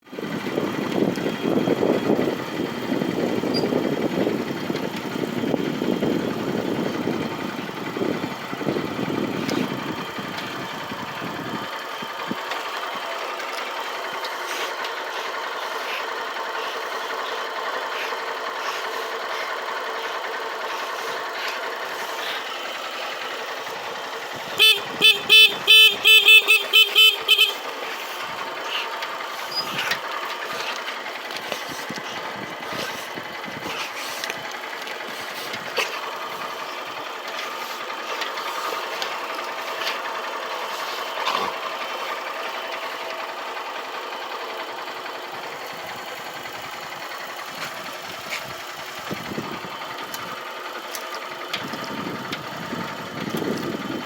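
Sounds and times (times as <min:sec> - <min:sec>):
vehicle horn honking: 0:24.4 - 0:27.8.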